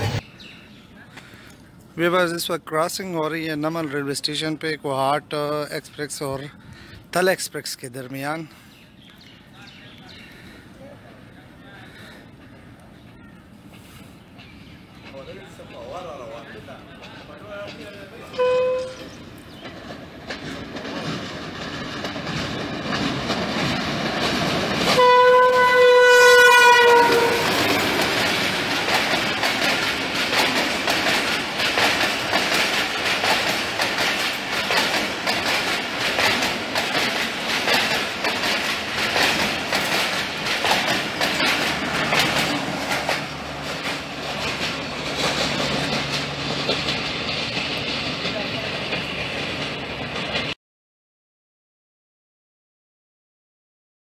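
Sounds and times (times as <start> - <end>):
train wheels clattering over rail joints: 11.9 - 50.6
diesel locomotive horn blast: 18.3 - 19.2, 24.9 - 27.8.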